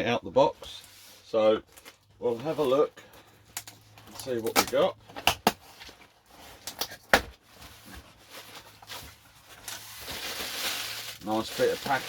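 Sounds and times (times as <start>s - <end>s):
packaging rustling and crinkling: 3.5s - 12.0s.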